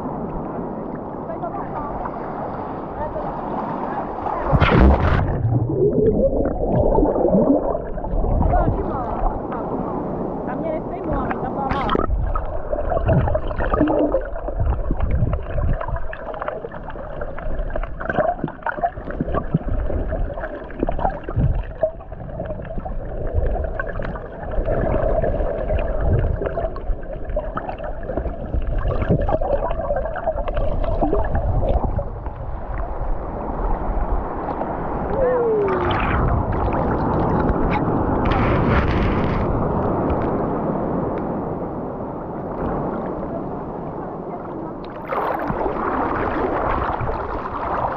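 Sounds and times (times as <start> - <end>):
muffled water sloshing and gurgling: 0.0 - 47.9
knocks and splashes: 4.4 - 9.4, 11.1 - 16.7.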